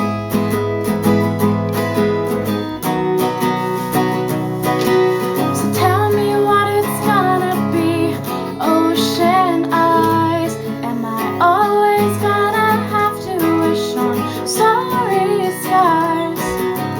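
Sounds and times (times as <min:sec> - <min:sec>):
acoustic guitar strumming: 0:00.0 - 0:16.9
woman singing: 0:05.4 - 0:16.9.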